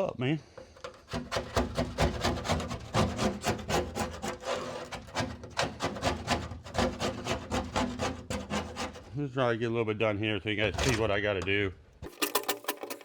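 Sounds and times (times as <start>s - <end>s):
rhythmic scraping on metal: 0.6s - 9.2s.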